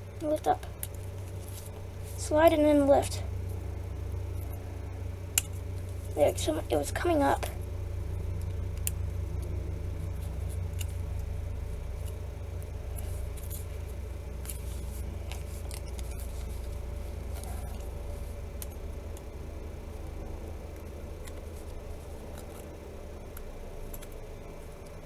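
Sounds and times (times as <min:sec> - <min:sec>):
steady low hum: 0:00.0 - 0:25.0
clicks and scrapes of phone parts: 0:14.4 - 0:18.0.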